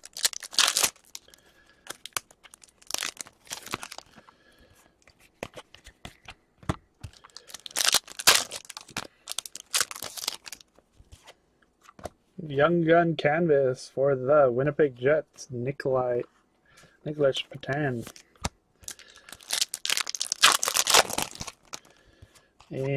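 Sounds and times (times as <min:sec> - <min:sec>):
card pack wrappers tearing: 0:00.0 - 0:04.2, 0:07.2 - 0:10.6, 0:18.0 - 0:21.9
wrapper crackling: 0:00.0 - 0:04.2, 0:07.2 - 0:10.7, 0:18.8 - 0:22.0.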